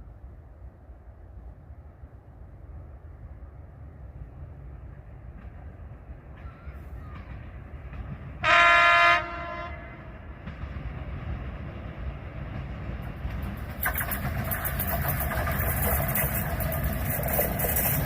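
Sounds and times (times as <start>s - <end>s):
train rumble: 0.0s - 18.0s
train horn blast: 8.4s - 10.2s.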